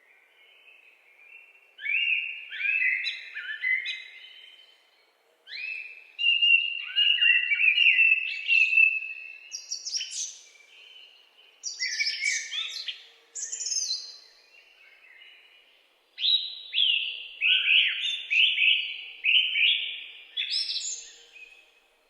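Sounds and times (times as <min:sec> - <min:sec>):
songbirds singing: 0:00.0 - 0:22.0.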